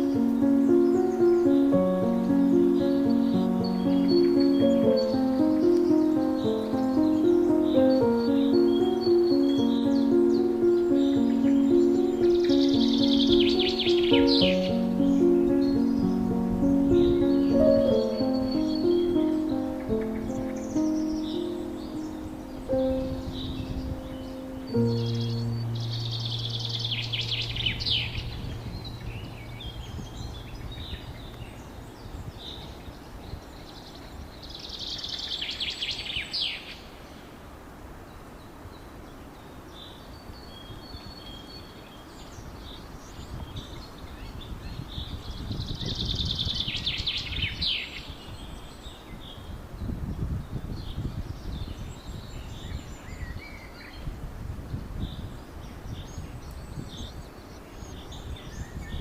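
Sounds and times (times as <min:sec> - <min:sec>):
songbird singing: 0:00.0 - 0:37.4, 0:38.0 - 0:59.0
low outdoor noise: 0:00.0 - 0:45.4.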